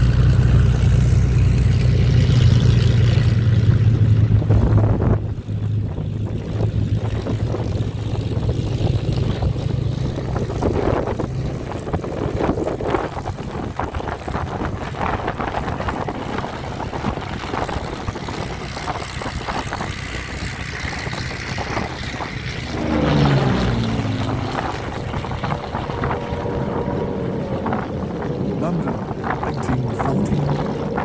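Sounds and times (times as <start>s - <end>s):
piston aircraft engine passing: 0.0s - 31.0s
rush of wind-like noise: 2.0s - 31.0s.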